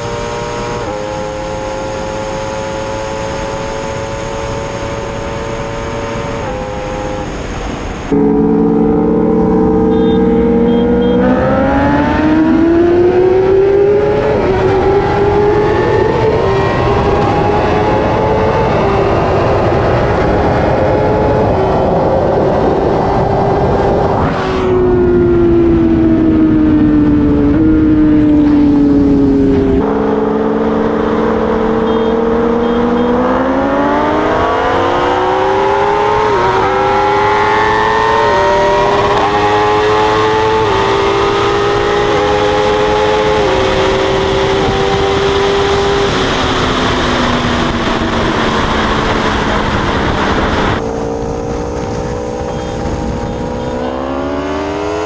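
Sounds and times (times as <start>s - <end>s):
motorcycle engine at full throttle: 0.0s - 55.0s
wind rush: 11.2s - 31.8s, 33.2s - 53.7s.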